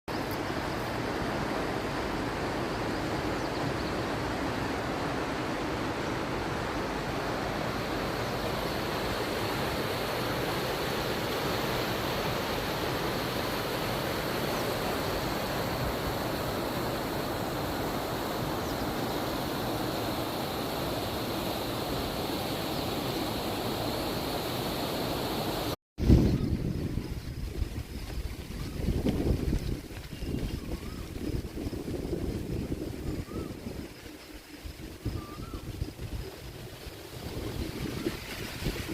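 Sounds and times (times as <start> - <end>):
flowing water rushing: 0.1 - 25.8
wind rumble on microphone: 26.0 - 38.9.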